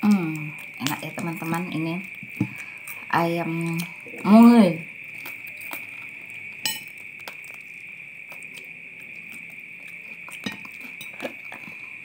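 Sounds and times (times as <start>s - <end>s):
person chewing: 5.0s - 12.0s.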